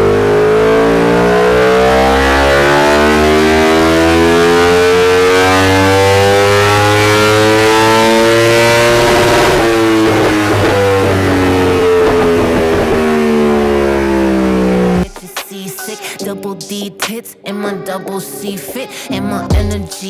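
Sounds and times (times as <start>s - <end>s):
motorcycle engine revving: 0.0s - 15.1s.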